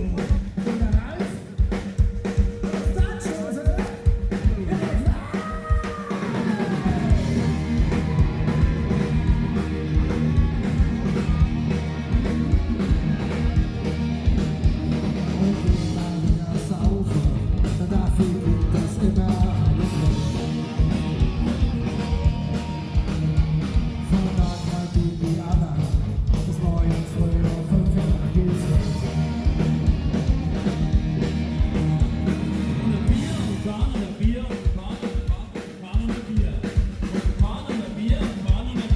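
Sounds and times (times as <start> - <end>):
live band playing: 0.0 - 38.9
person singing: 2.6 - 11.4.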